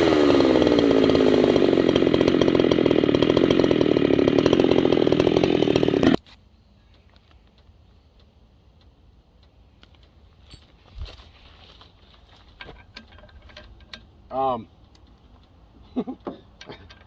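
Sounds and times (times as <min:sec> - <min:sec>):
chainsaw running hard: 0:00.0 - 0:06.2
faint clicks: 0:06.8 - 0:10.4.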